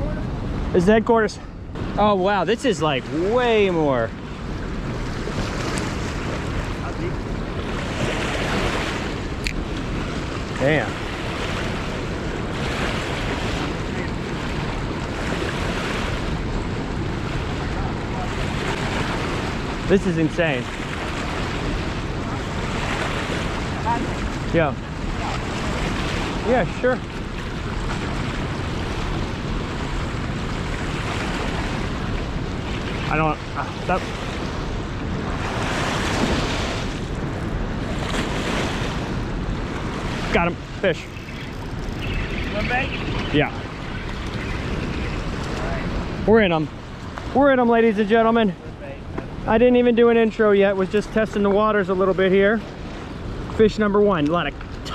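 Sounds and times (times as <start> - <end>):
wind rumbling on microphone: 0.0 - 54.9
water rushing through spillway: 40.1 - 48.5.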